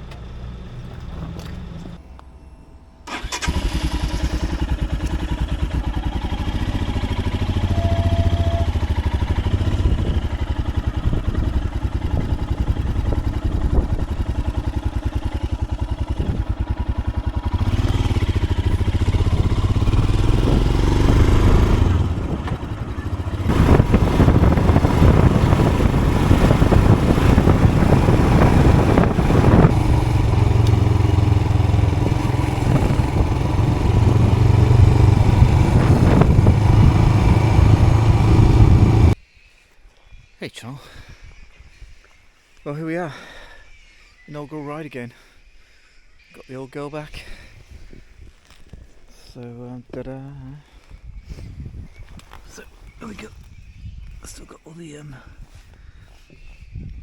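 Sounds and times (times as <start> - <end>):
motorcycle engine running: 3.1 - 39.2.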